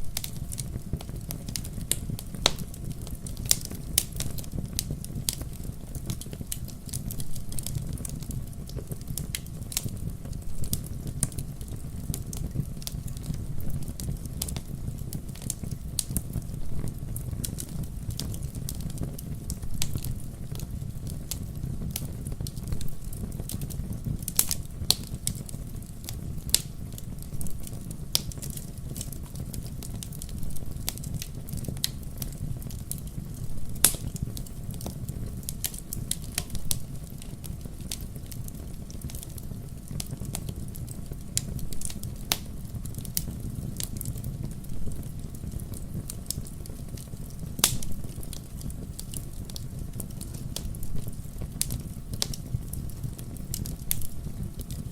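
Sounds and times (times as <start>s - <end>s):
wood fire crackling: 0.0s - 54.9s.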